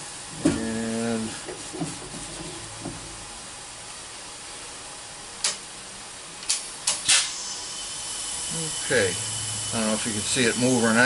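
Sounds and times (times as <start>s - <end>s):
steady air hiss: 6.7s - 11.0s
sharp puffs of air: 7.0s - 8.0s.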